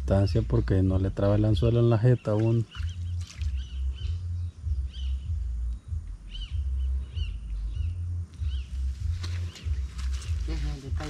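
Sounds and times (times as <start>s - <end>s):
birds chirping: 0.0s - 11.0s
low rumble: 2.7s - 11.0s.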